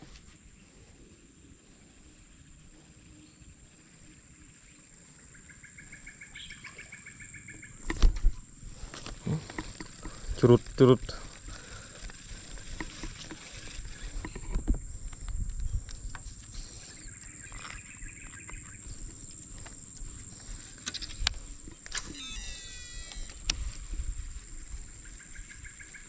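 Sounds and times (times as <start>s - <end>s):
insects droning high-pitched: 0.4s - 26.0s
sharp clicks: 20.8s - 23.6s.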